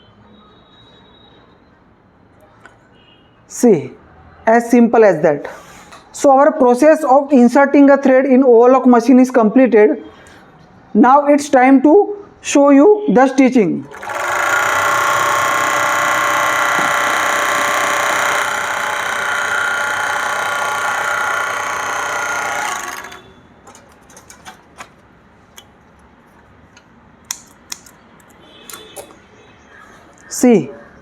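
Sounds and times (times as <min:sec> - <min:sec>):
overlock sewing machine running: 0:13.9 - 0:24.6.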